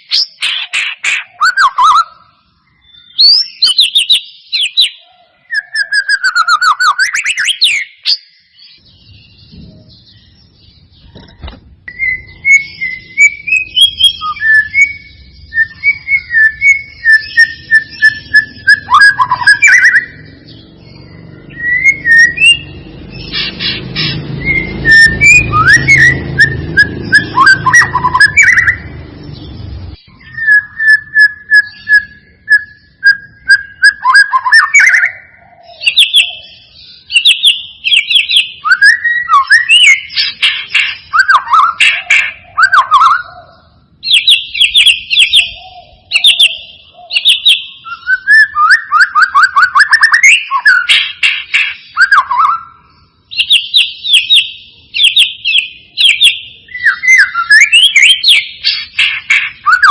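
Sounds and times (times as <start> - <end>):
bird singing whistled notes: 0.0 - 59.9
low rumbling noise: 20.0 - 33.8.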